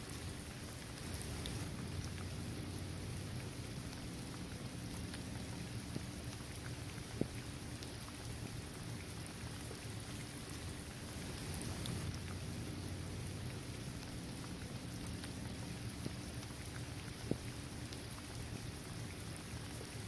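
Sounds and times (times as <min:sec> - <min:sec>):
rain falling: 0:00.0 - 0:20.0
single raindrops ticking: 0:00.9 - 0:02.4, 0:11.3 - 0:12.4
low steady rumble: 0:01.0 - 0:20.0.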